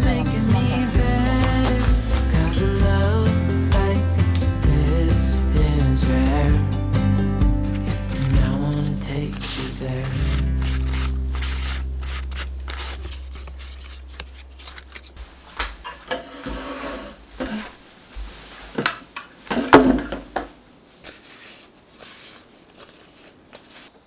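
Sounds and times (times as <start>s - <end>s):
low background music: 0.0s - 15.0s.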